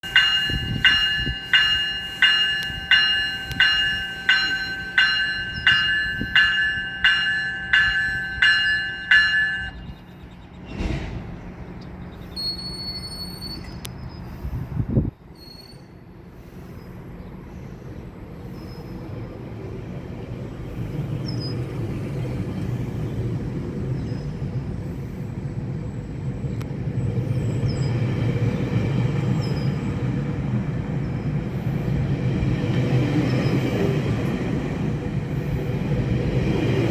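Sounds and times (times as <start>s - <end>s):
bell-like warning signal: 0.0s - 10.2s
train clanks: 0.0s - 12.1s, 18.9s - 36.9s
diesel train rumbling: 0.0s - 36.9s.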